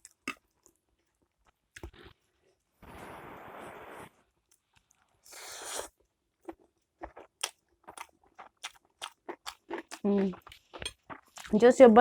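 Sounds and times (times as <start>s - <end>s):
person chewing noodles: 4.8s - 11.6s.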